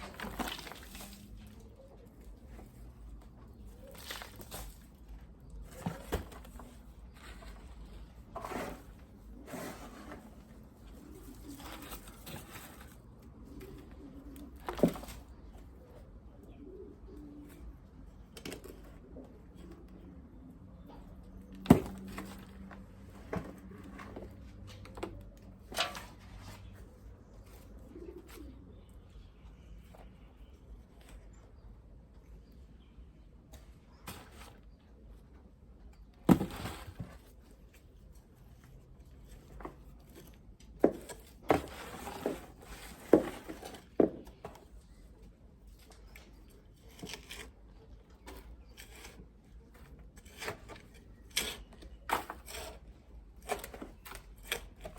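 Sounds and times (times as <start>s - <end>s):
dove cooing softly: 10.8s - 20.5s, 27.4s - 29.1s.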